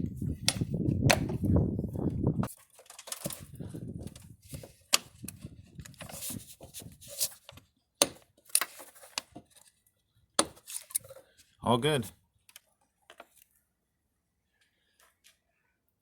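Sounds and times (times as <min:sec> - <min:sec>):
plastic housing rattling: 0:02.5 - 0:06.4.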